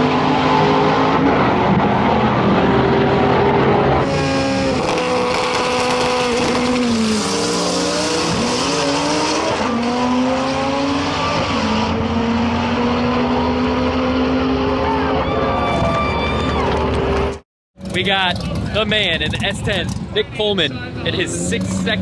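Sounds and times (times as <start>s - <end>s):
race car engine at full throttle: 0.0s - 22.0s.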